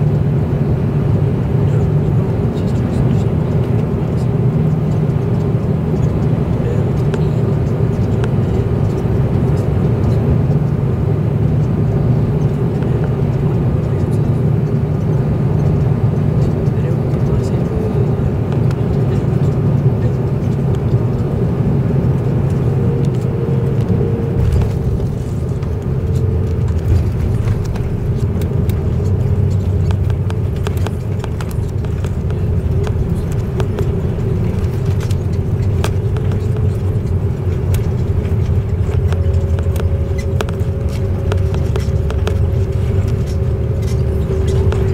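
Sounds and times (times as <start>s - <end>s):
airliner rumble: 0.0s - 44.9s
small clicks and rattles: 22.1s - 44.9s.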